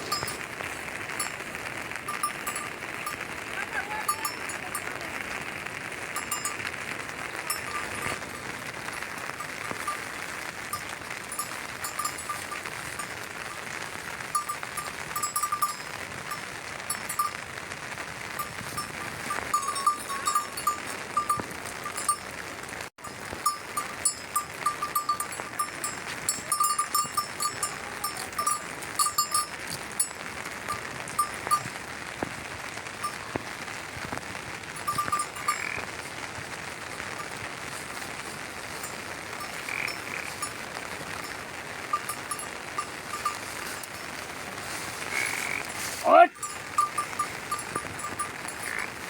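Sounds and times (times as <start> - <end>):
animal bells clinking: 0.0 - 5.5, 6.1 - 17.4, 18.4 - 22.4, 23.0 - 31.8, 33.0 - 33.3, 34.7 - 35.9, 36.8 - 49.0
steady hiss: 23.0 - 49.0.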